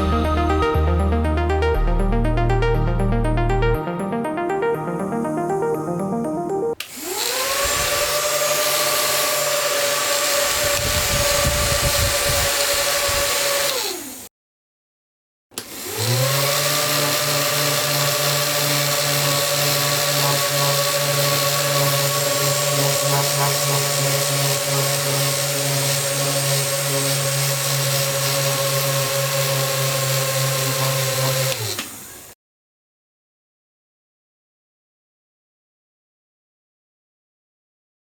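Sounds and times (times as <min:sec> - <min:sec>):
small electric motors whining: 0:06.8 - 0:14.3, 0:15.6 - 0:32.3.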